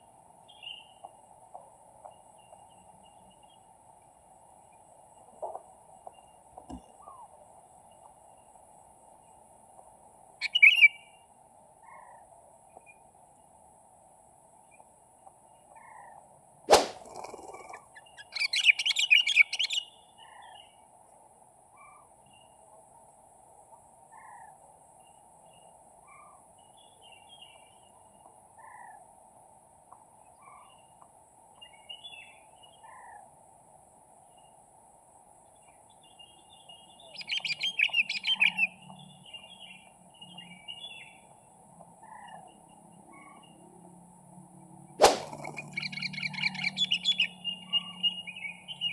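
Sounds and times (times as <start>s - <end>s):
birds calling: 45.0s - 48.9s.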